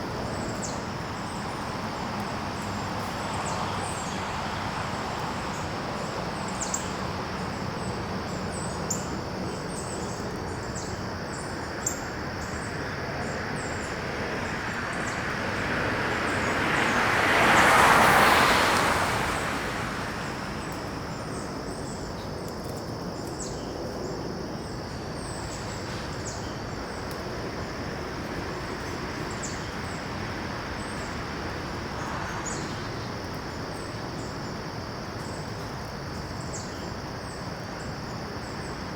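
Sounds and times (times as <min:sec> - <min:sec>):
high insect drone: 0:00.0 - 0:38.9
vehicle passing: 0:12.6 - 0:22.2, 0:25.3 - 0:35.2.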